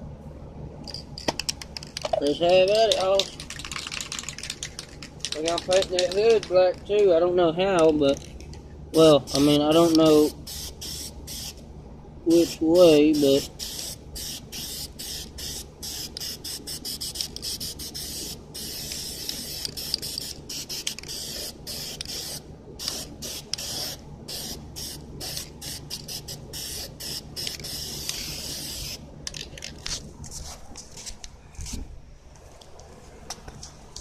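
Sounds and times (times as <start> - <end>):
spray paint can hissing: 2.5 - 6.5, 9.0 - 11.6, 12.3 - 29.7.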